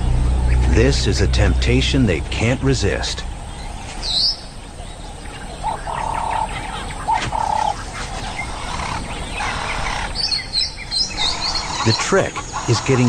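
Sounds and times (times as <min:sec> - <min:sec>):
low background hiss: 0:00.0 - 0:07.0.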